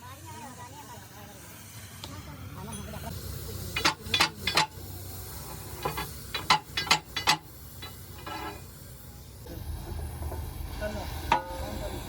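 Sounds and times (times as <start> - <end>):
steady low hum: 1.6 - 12.0.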